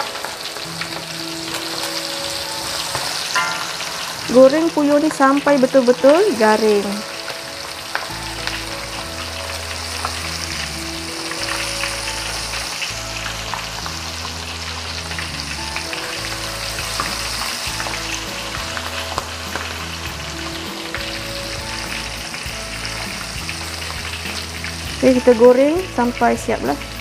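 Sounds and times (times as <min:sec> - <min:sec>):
meat deep-frying in oil: 0:00.0 - 0:27.0
soft background music: 0:00.0 - 0:27.0.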